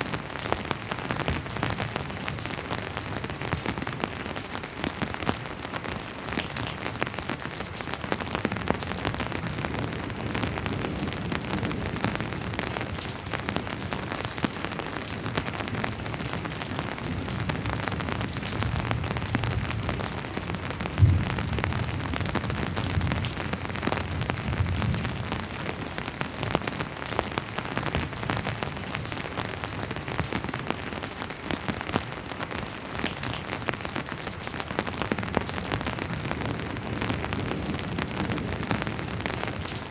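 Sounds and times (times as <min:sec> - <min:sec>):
rain falling: 0:00.0 - 0:39.9
distant thunder rumble: 0:18.6 - 0:25.2.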